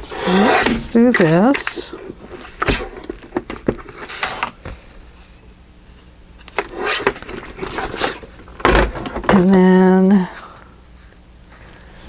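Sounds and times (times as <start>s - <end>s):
paper rustling: 6.5s - 10.0s.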